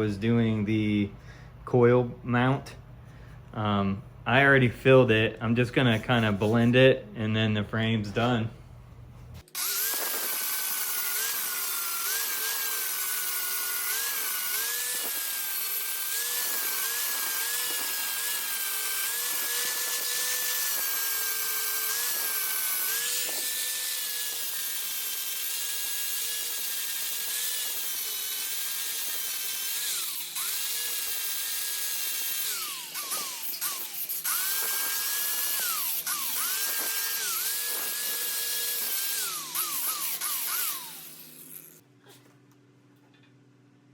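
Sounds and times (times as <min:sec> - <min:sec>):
power grinder on metal: 0:09.4 - 0:41.8.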